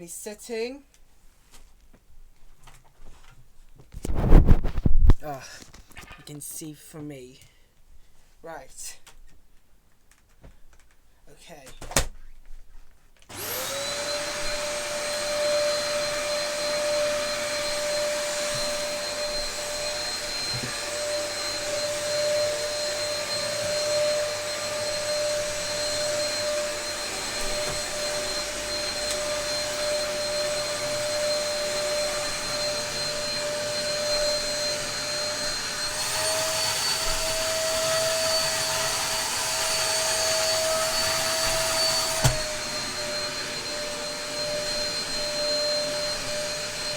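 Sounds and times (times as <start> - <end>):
vacuum cleaner motor whining: 13.3 - 46.9.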